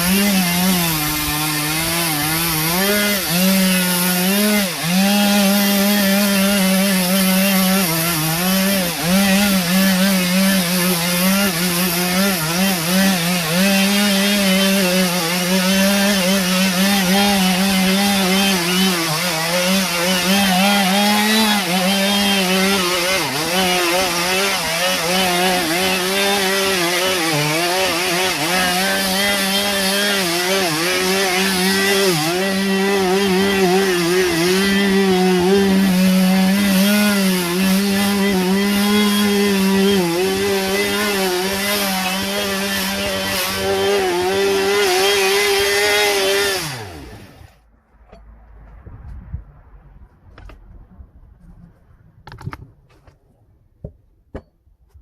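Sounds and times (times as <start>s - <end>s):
chainsaw cutting wood: 0.0s - 47.7s.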